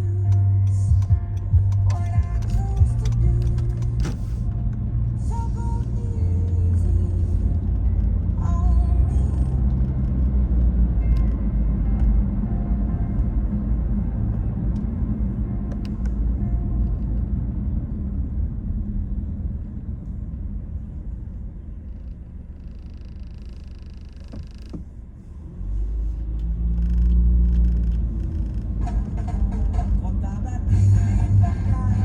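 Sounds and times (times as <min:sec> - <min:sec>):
car wash rumbling: 0:00.0 - 0:10.6, 0:17.8 - 0:32.0.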